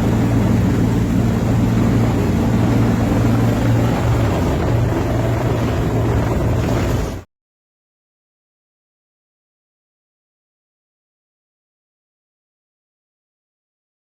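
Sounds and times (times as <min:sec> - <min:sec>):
helicopter hovering: 0:00.0 - 0:07.3.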